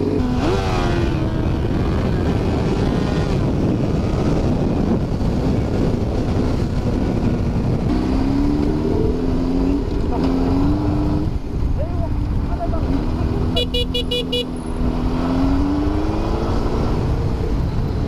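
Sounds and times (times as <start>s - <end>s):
motorcycle engine revving: 0.0s - 11.5s, 12.2s - 18.0s
wind on microphone: 0.0s - 13.6s.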